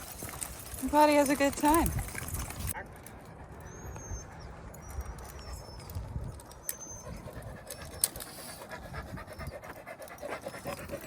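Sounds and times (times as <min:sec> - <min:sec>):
dogs panting: 0:00.0 - 0:11.0
bird whistling: 0:06.6 - 0:07.2.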